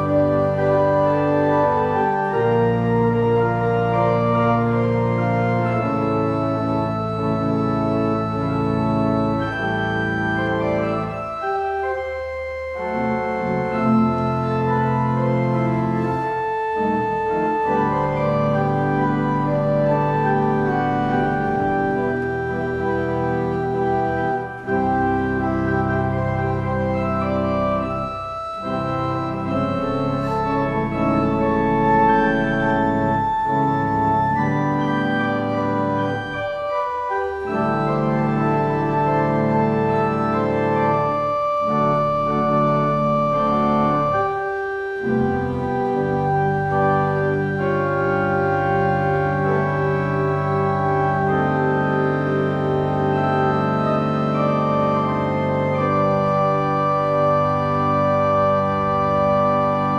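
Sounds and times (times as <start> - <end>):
organ playing sustained chords: 0.0 - 59.9.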